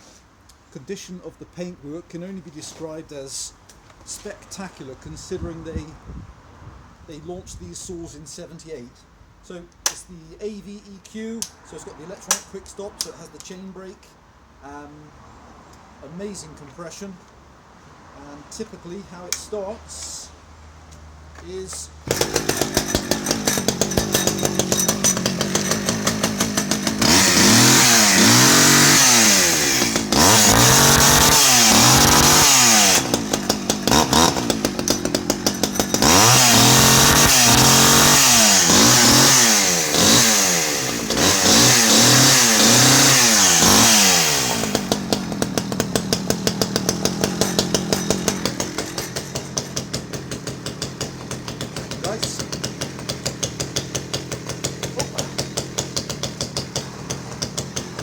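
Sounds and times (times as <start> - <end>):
chainsaw idling and revving: 22.0 - 58.0.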